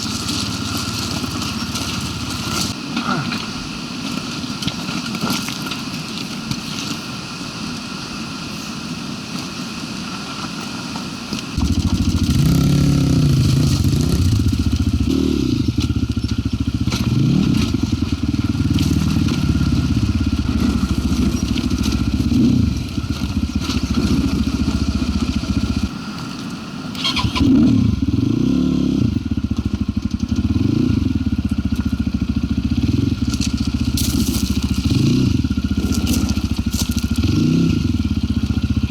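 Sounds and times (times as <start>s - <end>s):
motorcycle engine revving: 0.0s - 2.8s, 11.6s - 25.9s, 27.0s - 38.9s.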